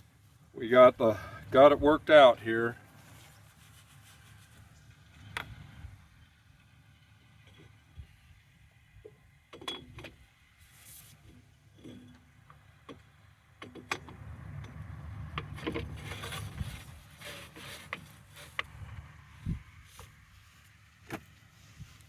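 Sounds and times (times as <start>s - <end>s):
metal clinks and knocks: 9.5s - 10.2s.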